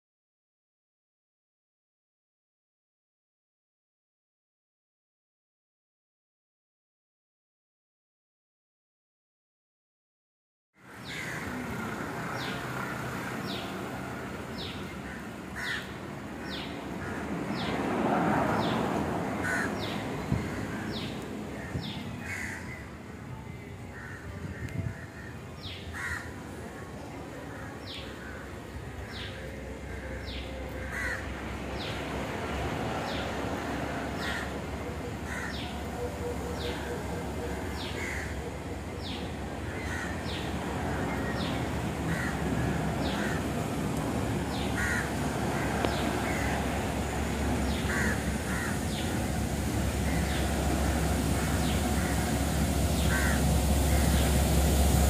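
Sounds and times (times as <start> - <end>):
rushing noise: 10.9 - 23.9, 25.9 - 55.0
lower harsh bird call: 49.9 - 54.5.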